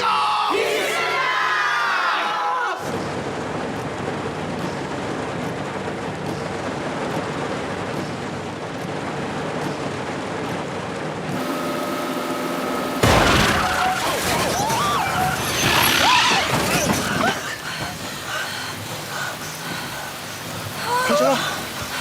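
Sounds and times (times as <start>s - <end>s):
steady noisy hiss: 0.0s - 22.0s
car tyre bursting with a bang: 13.0s - 17.0s
tyres squealing: 13.0s - 18.5s.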